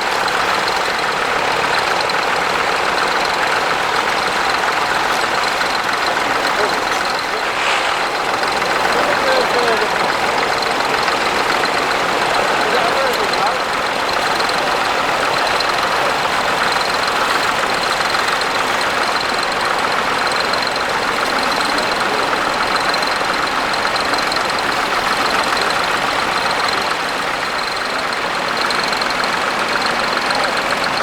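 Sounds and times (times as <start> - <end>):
tractor engine running: 0.0 - 31.0
thin high whine: 6.2 - 10.9.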